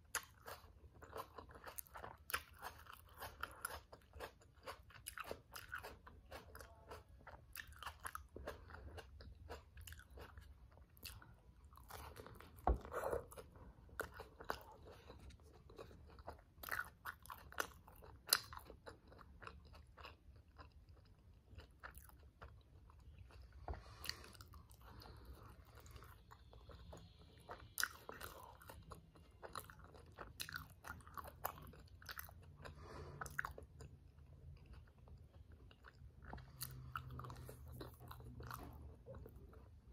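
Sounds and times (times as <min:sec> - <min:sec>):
close-miked chewing and crunching: 0:00.0 - 0:39.9.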